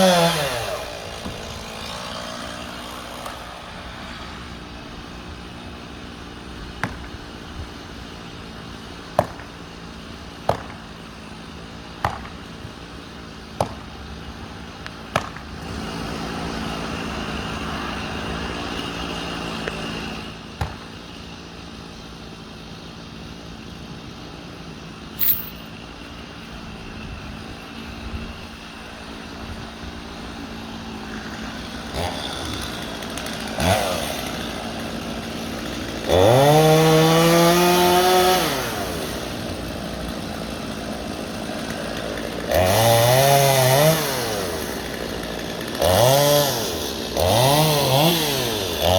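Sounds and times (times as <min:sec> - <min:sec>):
chainsaw idling: 0:00.0 - 0:06.5, 0:29.0 - 0:48.9.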